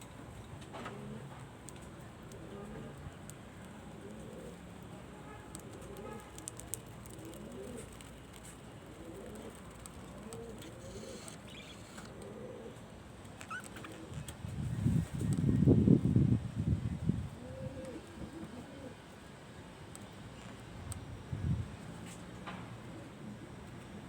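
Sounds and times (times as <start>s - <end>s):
pigeons cooing: 0.8s - 1.5s, 2.3s - 3.1s, 3.7s - 4.7s, 5.6s - 14.3s, 17.3s - 19.1s.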